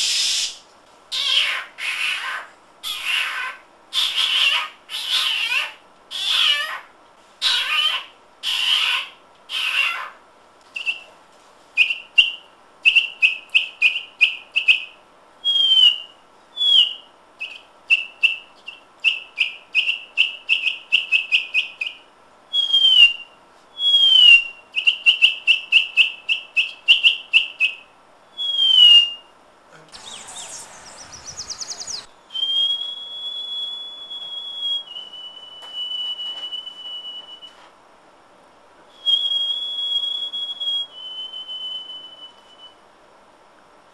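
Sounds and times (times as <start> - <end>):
person whistling bird calls: 10.8 - 11.1, 15.4 - 27.8, 28.4 - 29.2, 30.0 - 37.6, 39.0 - 42.8.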